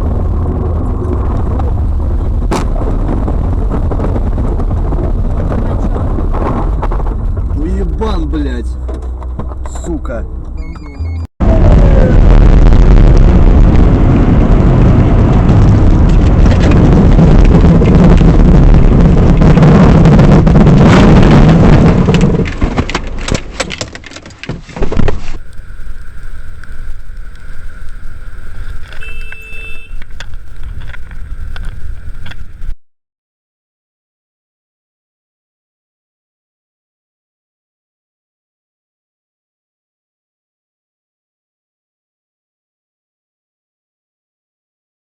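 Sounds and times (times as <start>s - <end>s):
car road and engine noise: 0.0s - 11.2s, 11.9s - 32.8s
short beeping tones: 10.6s - 11.3s, 28.9s - 30.0s.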